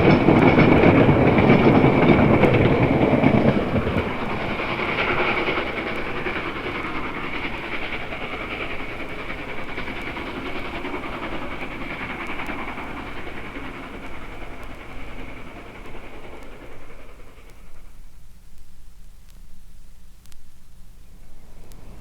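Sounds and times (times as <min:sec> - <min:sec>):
steam locomotive and train rolling: 0:00.0 - 0:22.0.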